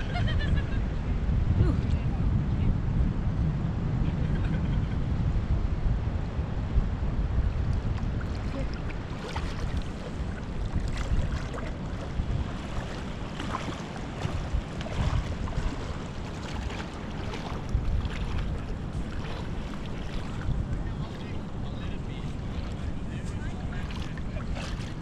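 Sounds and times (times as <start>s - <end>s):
wind buffeting microphone: 0.0s - 25.0s
water splashing and lapping: 7.5s - 25.0s.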